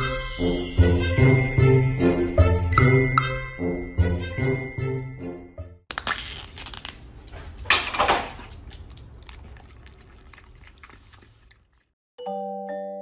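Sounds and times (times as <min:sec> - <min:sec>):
foil lid crinkling and tearing: 0:05.9 - 0:09.4.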